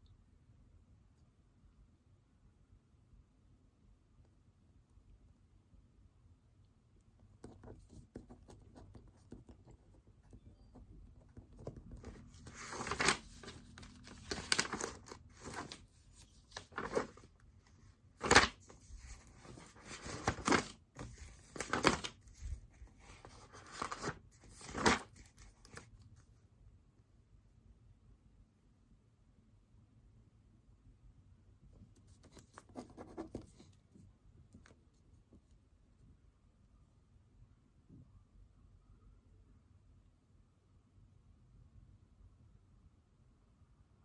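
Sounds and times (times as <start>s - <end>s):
paper rustling: 7.4s - 26.3s, 31.8s - 34.0s
paper tearing: 12.0s - 15.8s.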